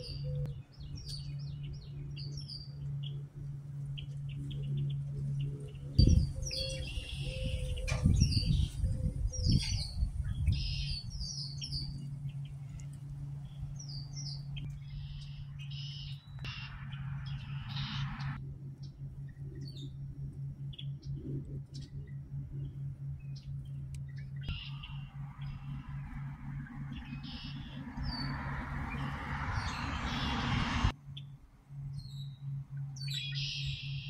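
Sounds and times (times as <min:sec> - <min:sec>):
birds chirping: 0:00.0 - 0:31.3, 0:31.9 - 0:34.0
steady low hum: 0:00.0 - 0:34.0
low rumbling thumps: 0:03.6 - 0:14.9.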